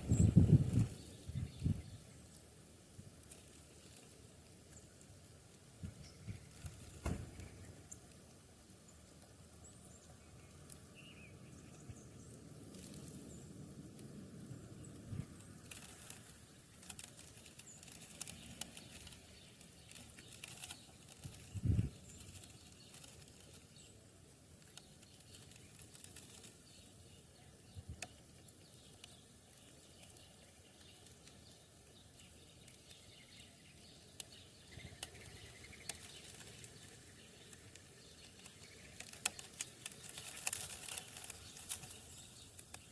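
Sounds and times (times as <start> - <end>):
dull thump: 7.0 - 7.5.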